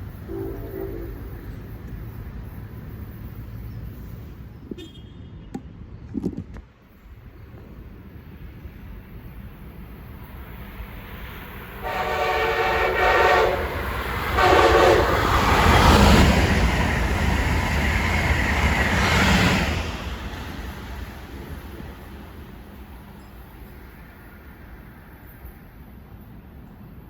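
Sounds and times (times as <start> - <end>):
train passing at speed: 0.0 - 4.8, 6.7 - 27.0
train horn blasts: 0.2 - 1.4, 11.8 - 15.5.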